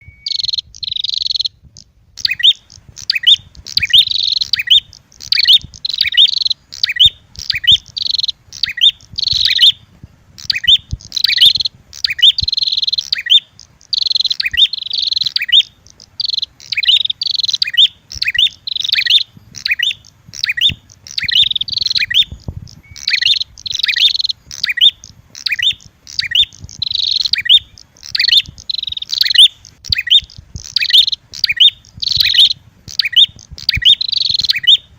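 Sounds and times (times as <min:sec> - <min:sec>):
rapid high bird chirping: 0:00.0 - 0:34.9.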